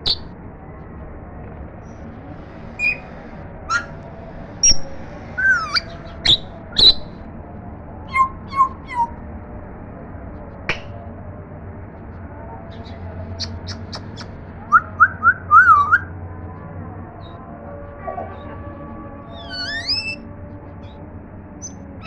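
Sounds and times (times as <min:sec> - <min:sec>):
parrot whistling and squawking: 0:02.8 - 0:03.0, 0:03.7 - 0:03.9, 0:05.4 - 0:07.1, 0:08.1 - 0:09.1, 0:13.4 - 0:14.3, 0:19.4 - 0:20.2.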